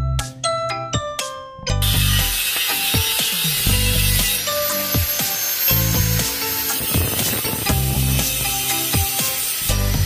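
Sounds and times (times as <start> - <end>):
bell-like mallet music: 0.0 - 2.1
rasping tool noise: 1.8 - 10.0.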